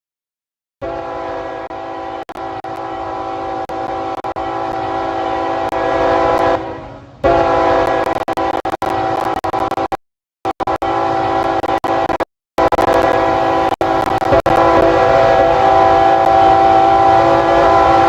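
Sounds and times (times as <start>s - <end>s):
locomotive air horn chord: 0.8s - 9.4s, 10.6s - 18.0s.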